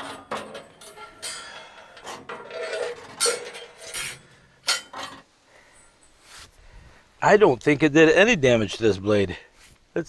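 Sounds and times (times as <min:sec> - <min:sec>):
metal clinks and scrapes: 0:00.0 - 0:06.3.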